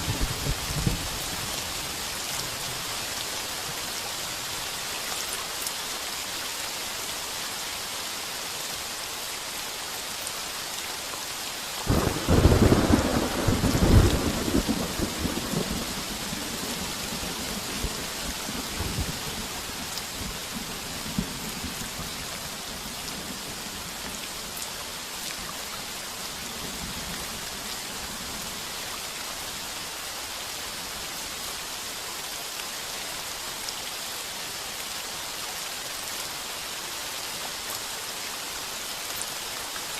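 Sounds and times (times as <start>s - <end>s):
heavy rain: 0.0s - 39.9s
thunder rumbling: 11.9s - 18.0s.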